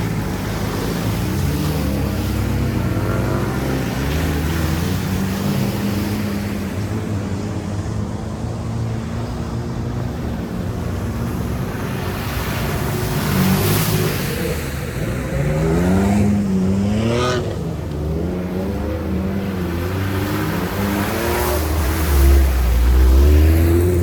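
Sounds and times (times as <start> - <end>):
vehicle engine revving: 10.9 - 24.0.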